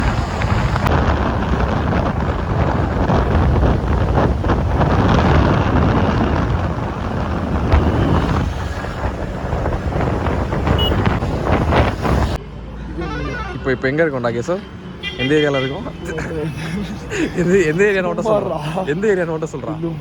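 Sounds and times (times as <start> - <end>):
wind buffeting microphone: 0.0 - 12.4
road and vehicle noise: 0.0 - 20.0.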